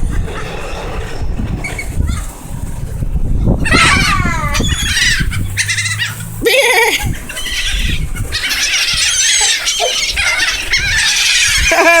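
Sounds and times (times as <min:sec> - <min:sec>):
seagulls squawking: 0:03.4 - 0:12.0.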